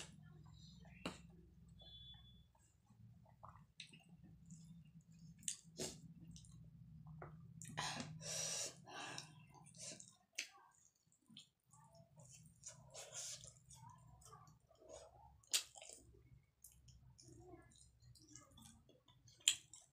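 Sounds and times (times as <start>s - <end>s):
low steady hum: 0.0s - 10.2s
chewing and lip smacks: 3.2s - 7.8s, 9.2s - 19.9s.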